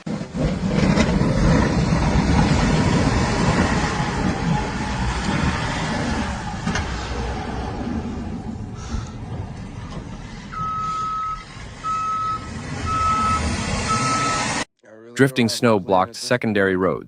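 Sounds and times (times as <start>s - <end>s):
heavy vehicle rumbling: 0.0s - 14.7s.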